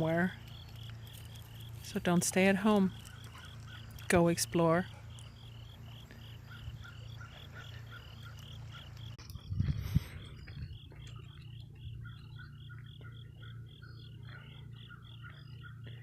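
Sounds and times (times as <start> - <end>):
frogs calling: 0.0 - 16.0
lower-pitched frog calls: 5.1 - 16.0.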